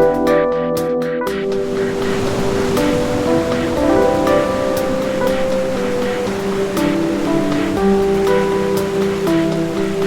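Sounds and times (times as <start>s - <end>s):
calm relaxation music: 0.0s - 10.0s
ocean waves: 1.3s - 10.0s.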